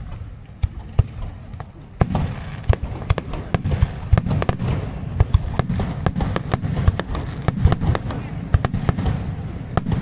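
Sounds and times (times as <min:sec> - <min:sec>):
fireworks sharp cracks: 0:00.0 - 0:10.0.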